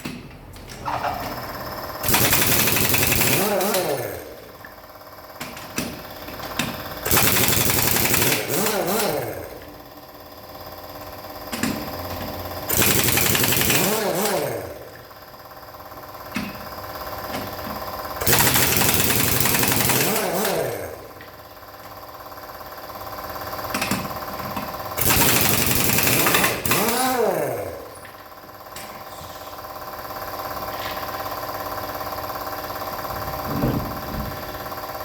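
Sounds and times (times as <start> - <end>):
pneumatic impact wrench rattling: 0.0 - 35.0
wrench spinning whine: 16.0 - 35.0.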